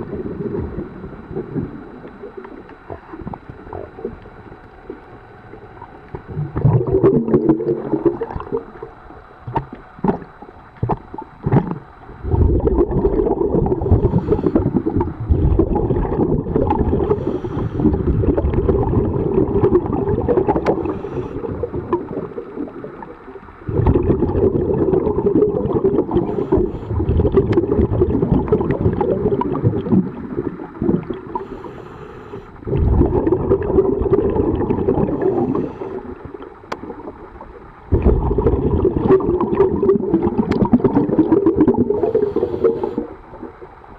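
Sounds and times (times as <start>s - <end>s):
exhaled bubbles gurgling underwater: 0.0s - 43.9s
regulator inhalations with clicks: 13.9s - 15.2s, 17.0s - 18.6s, 20.6s - 21.5s, 26.2s - 27.6s, 31.3s - 32.7s, 42.0s - 43.1s.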